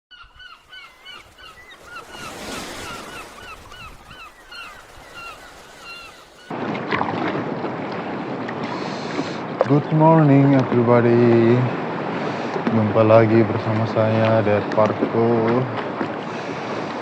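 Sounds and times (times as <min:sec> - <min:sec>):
short bird calls: 0:00.1 - 0:06.5
sea waves washing: 0:00.2 - 0:17.0.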